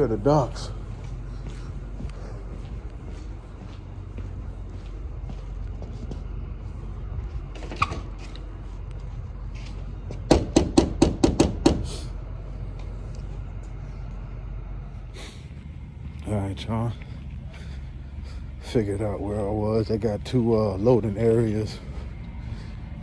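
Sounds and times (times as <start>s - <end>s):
truck engine idling: 0.0s - 23.0s
brief squeak: 7.6s - 8.1s
rapid sharp knocks: 10.3s - 11.9s.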